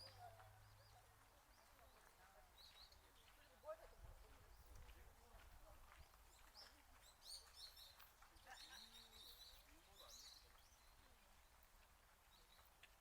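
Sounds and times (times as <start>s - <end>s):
quiet outdoor ambience: 0.0s - 13.0s.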